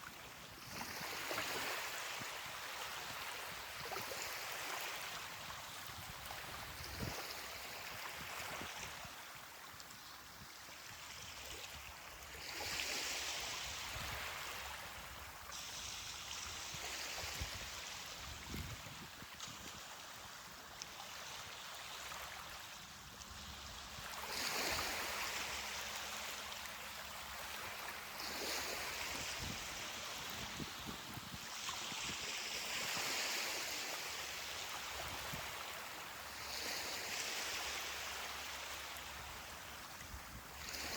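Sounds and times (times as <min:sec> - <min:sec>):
ocean surf on a beach: 0:24.0 - 0:40.9.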